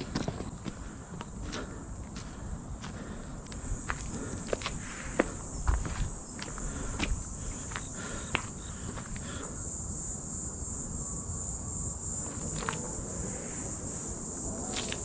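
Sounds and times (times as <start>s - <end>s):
footsteps on trail: 0.0s - 9.5s, 12.2s - 12.9s, 14.7s - 15.0s
crickets trilling: 0.0s - 15.0s.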